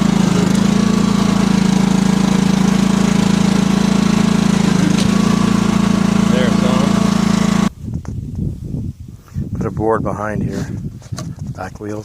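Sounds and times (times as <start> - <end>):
lawn mower engine running: 0.0 - 7.7.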